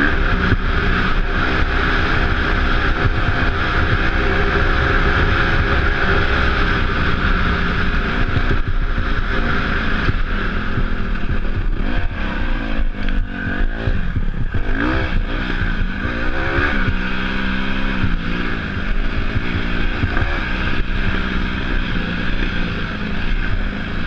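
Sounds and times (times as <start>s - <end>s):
dirt bike engine running: 0.0s - 24.0s.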